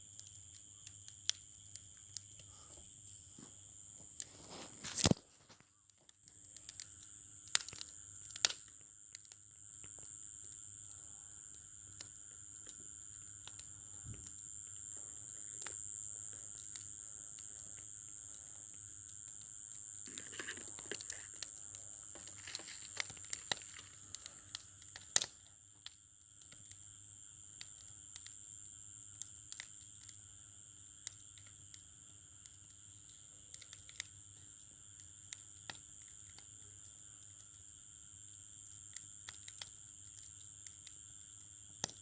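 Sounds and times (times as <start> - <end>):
steady hiss: 0.0 - 42.0
wood bonfire crackling: 0.0 - 42.0
sharp pops: 4.8 - 5.6.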